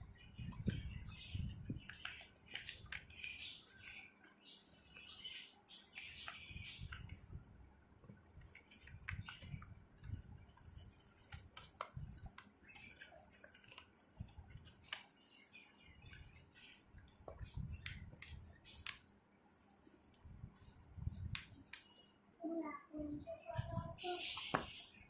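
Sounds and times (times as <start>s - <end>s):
paper rustling and folding: 0.7s - 4.2s, 8.0s - 19.0s.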